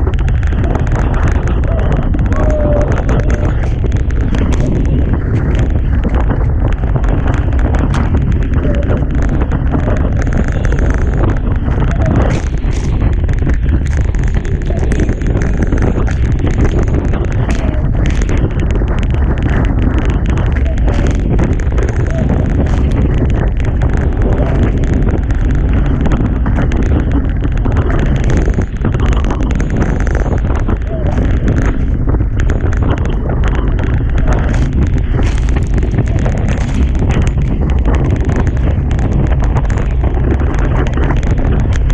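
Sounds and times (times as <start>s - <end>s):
wind buffeting microphone: 0.0s - 41.9s.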